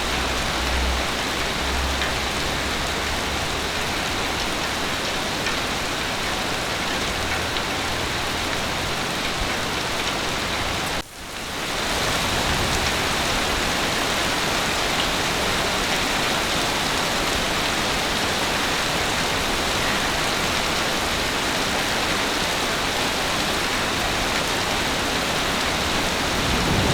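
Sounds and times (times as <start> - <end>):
heavy rain hissing: 18.8 - 26.9.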